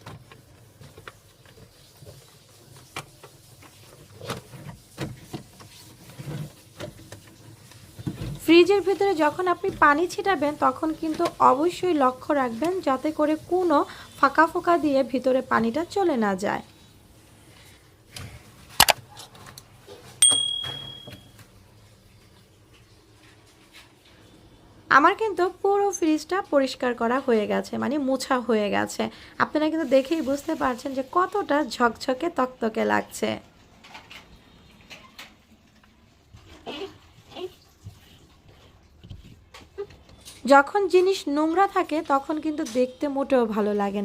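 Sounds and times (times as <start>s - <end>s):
high-pitched electronic beep: 20.2s - 21.2s.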